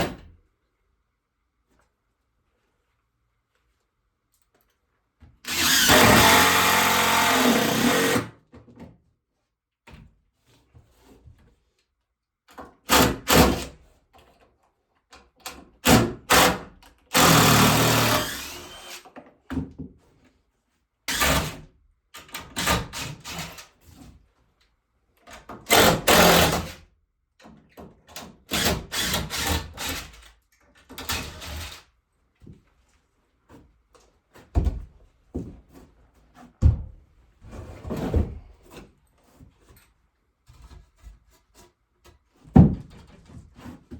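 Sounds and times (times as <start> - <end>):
woodworking knocks and clatter: 5.2 - 9.2, 17.2 - 20.4, 27.4 - 30.0, 32.4 - 43.9
power drill running: 5.5 - 8.3, 17.1 - 19.0, 25.7 - 26.7.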